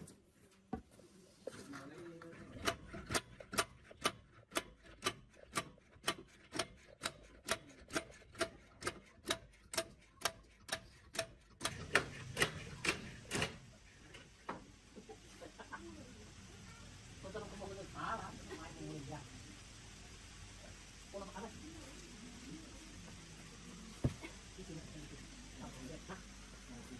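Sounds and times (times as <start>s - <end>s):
evenly spaced sharp clicks: 2.6s - 13.5s.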